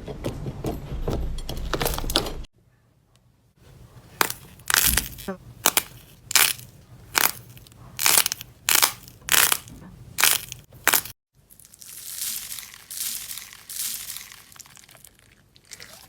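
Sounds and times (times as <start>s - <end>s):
slime crunching crackles: 4.1s - 16.0s.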